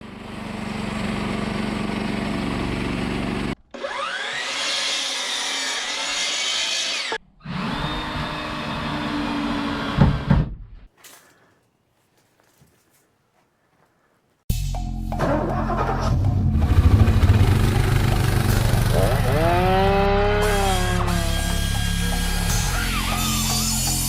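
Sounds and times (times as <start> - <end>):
power saw cutting wood: 0.1 - 10.4, 16.7 - 24.0.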